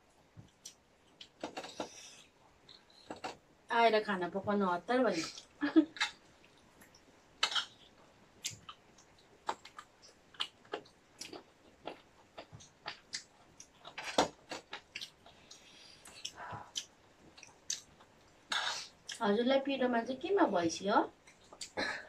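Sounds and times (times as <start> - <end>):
chewing with soft clicks and smacks: 0.4 - 3.4, 5.3 - 19.2, 21.2 - 21.8.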